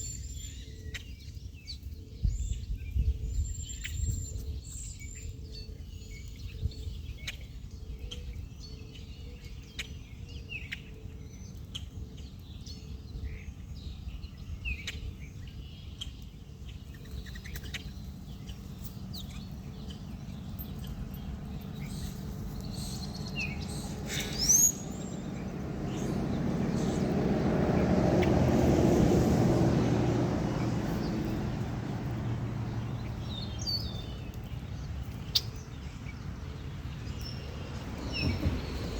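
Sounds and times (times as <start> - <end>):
small birds chirping: 0.0 - 38.9
broad rushing noise: 23.3 - 33.2.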